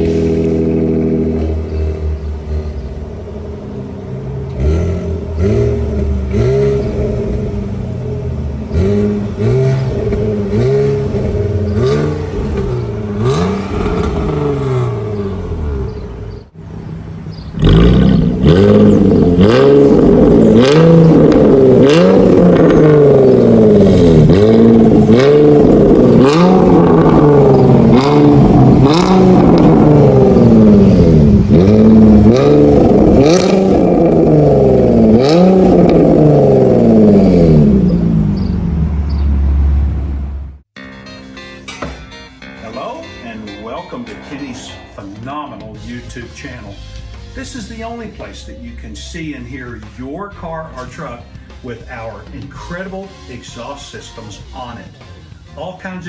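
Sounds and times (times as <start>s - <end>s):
sports car engine revving: 0.0s - 40.8s.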